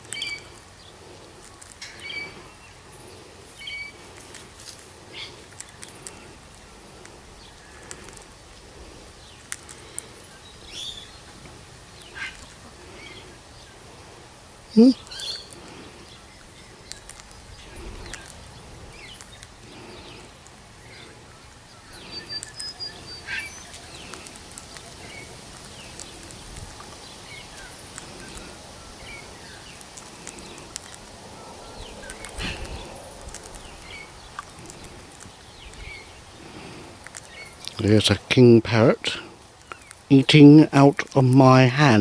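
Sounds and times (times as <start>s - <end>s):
bird chirps: 0.0s - 1.0s, 1.8s - 4.0s, 9.2s - 11.4s, 14.7s - 36.6s.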